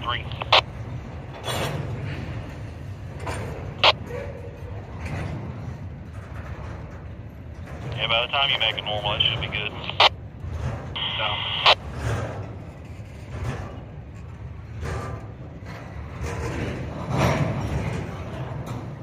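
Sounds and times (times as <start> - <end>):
radio squelch click: 0.0 - 0.6, 7.9 - 10.1, 11.0 - 11.8
scanner radio burst: 0.0 - 0.6, 8.0 - 10.1, 11.0 - 11.8.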